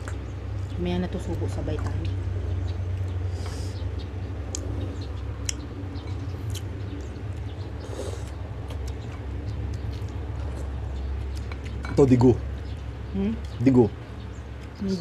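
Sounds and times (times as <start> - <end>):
low background hum: 0.0 - 15.0
chewing: 5.4 - 11.9.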